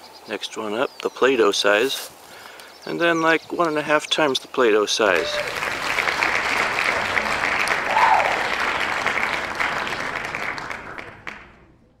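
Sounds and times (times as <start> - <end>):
crowd clapping: 5.1 - 11.7.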